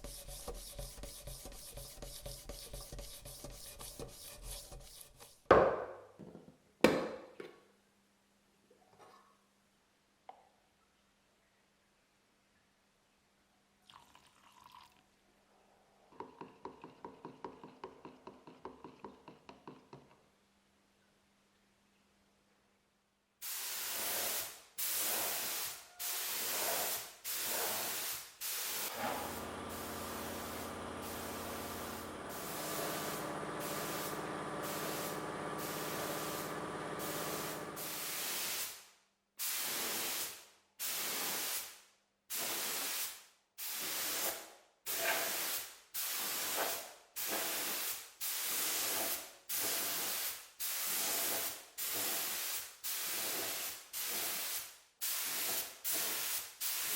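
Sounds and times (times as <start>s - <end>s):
paint spray hissing: 23.4s - 38.8s, 47.2s - 56.9s
steady hum: 28.9s - 38.0s.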